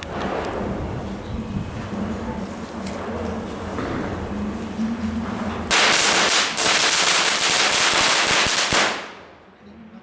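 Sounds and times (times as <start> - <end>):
firecracker string cracking: 5.7 - 9.4.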